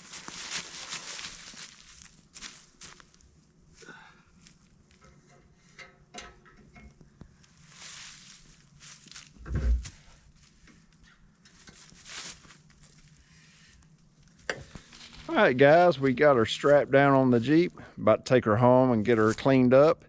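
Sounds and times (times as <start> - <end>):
footsteps: 0.0 - 3.2, 7.4 - 13.2, 14.5 - 17.8
rustling: 0.0 - 3.8, 7.0 - 16.8.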